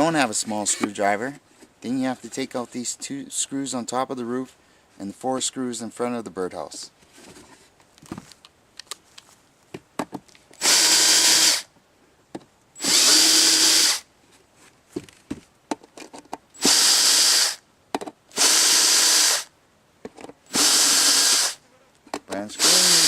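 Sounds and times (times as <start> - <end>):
cordless drill running: 10.6 - 11.7, 12.8 - 14.0, 16.6 - 17.6, 18.3 - 19.5, 20.5 - 21.6, 22.6 - 23.0
handling clicks and taps: 22.0 - 22.4.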